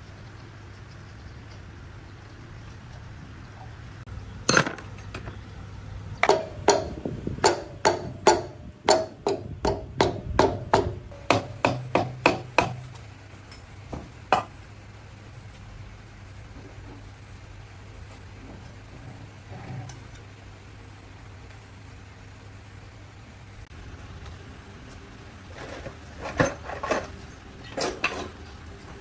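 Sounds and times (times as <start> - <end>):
hammer striking metal: 6.2 - 13.0.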